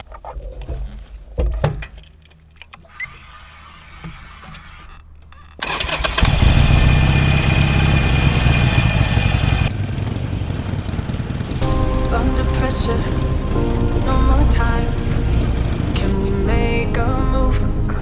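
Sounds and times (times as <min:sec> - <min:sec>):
motorcycle starter cranking: 0:05.5 - 0:09.8, 0:11.6 - 0:16.6
motorcycle engine running loudly: 0:05.8 - 0:16.5.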